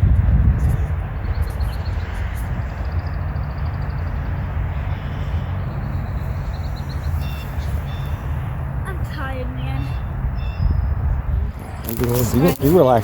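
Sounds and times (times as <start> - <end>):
outdoor rumble and hiss: 0.0 - 13.0.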